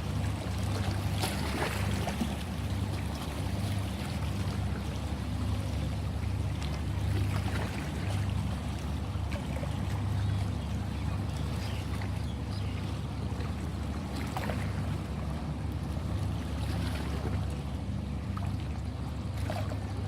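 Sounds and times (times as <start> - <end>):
small splashes: 0.0 - 5.0
ocean water sloshing: 0.0 - 20.0.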